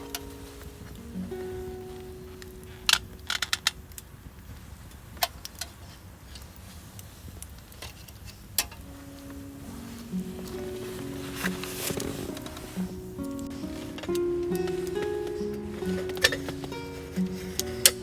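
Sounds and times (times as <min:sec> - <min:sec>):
soft guitar music: 0:00.0 - 0:04.5, 0:08.8 - 0:18.0.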